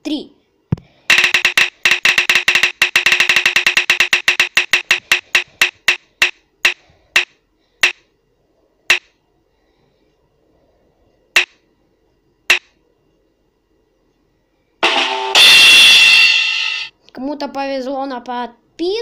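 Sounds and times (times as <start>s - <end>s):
spinning wheel ticking: 1.1s - 8.0s, 11.4s - 11.6s.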